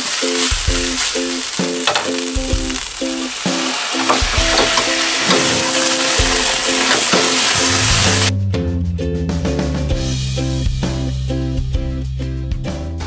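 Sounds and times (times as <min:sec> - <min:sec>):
vegetables sizzling in a skillet: 0:00.0 - 0:08.3
background music: 0:00.0 - 0:13.0.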